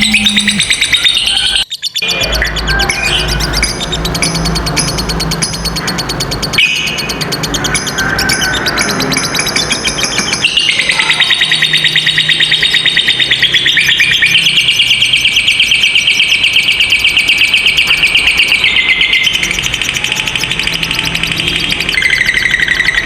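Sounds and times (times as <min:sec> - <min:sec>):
lovebird trilling: 0:00.0 - 0:01.4.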